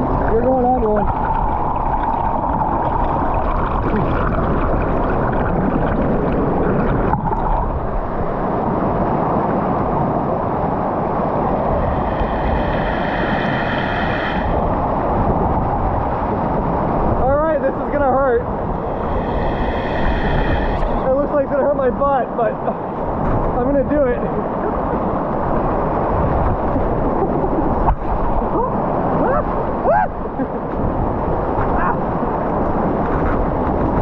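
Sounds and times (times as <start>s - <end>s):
waterfall rushing: 10.6s - 16.0s, 17.5s - 22.4s.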